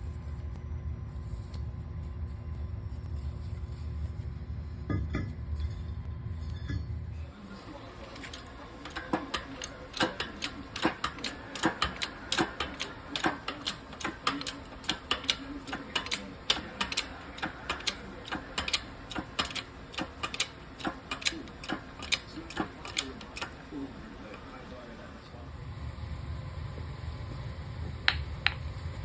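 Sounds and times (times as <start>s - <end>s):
hand tools clicking on metal: 8.2s - 23.8s.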